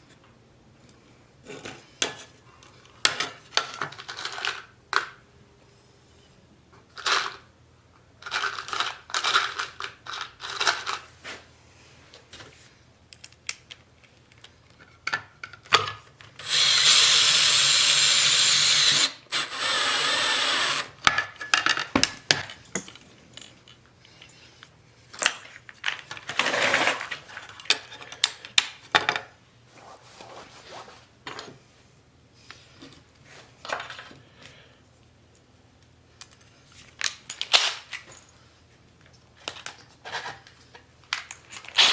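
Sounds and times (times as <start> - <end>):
power tool whining: 16.4 - 21.0.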